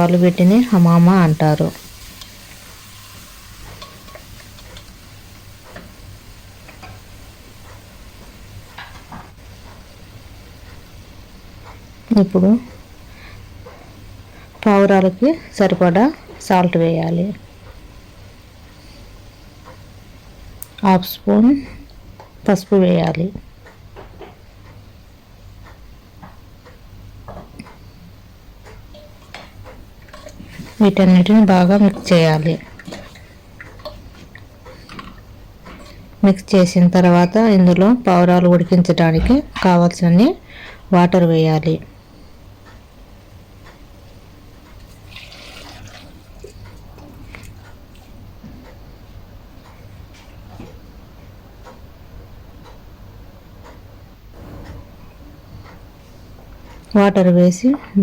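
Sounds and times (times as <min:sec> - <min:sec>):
food frying crackles: 0:00.0 - 0:24.7, 0:25.7 - 0:48.6
low steady hum: 0:00.0 - 0:58.0
utensils tapping a pot: 0:03.6 - 0:05.0, 0:28.7 - 0:36.0.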